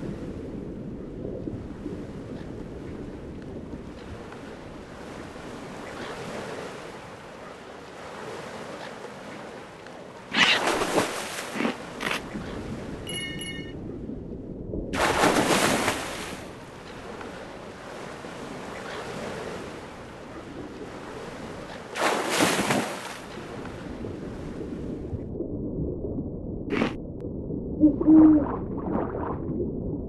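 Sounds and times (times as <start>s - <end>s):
steady low rumble: 13.6s - 15.2s, 23.5s - 30.0s
rushing water surges: 14.9s - 24.6s.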